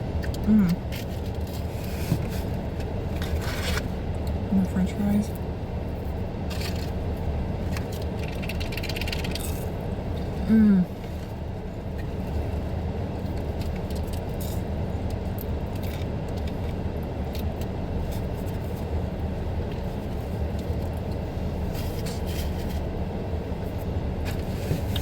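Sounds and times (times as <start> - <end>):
vehicle engine rumbling: 0.0 - 25.0.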